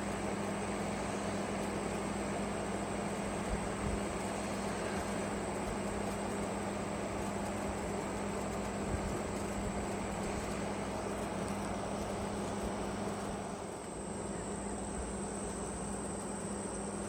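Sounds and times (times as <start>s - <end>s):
mechanical drone with low hum: 0.0s - 17.0s.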